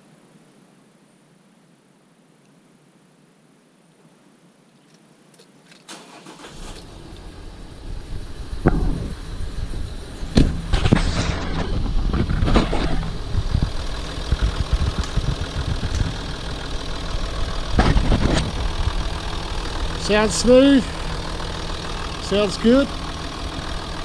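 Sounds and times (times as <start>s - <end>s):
diesel engine idling: 5.9s - 24.0s
sharp knocks: 8.6s - 9.2s.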